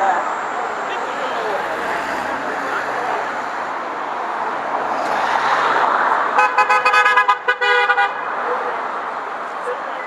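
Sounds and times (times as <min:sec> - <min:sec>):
crowd and street noise: 0:00.0 - 0:10.0.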